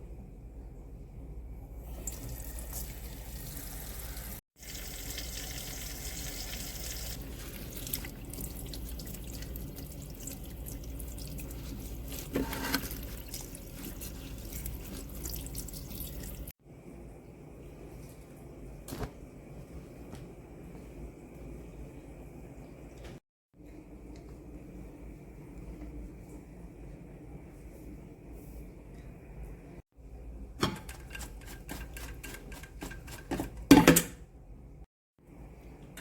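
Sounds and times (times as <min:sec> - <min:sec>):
running water: 0:01.9 - 0:16.5.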